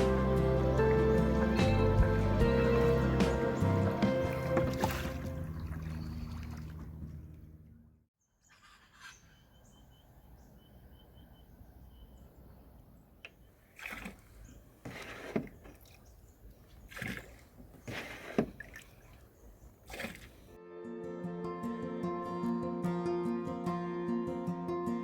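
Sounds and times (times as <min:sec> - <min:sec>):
canoe paddle splashing: 0:00.0 - 0:07.4, 0:13.2 - 0:20.6
bird chirping: 0:08.2 - 0:13.6.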